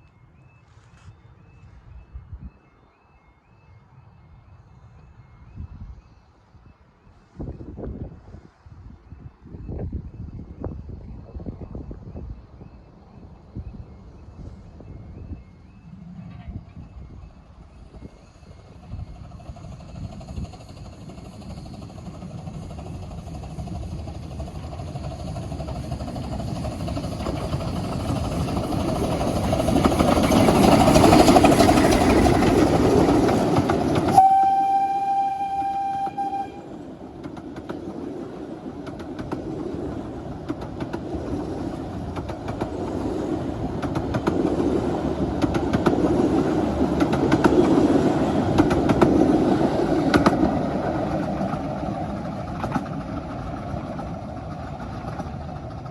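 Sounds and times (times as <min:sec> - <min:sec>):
miniature train running: 0:17.5 - 0:55.9
locomotive whistle: 0:33.9 - 0:36.8.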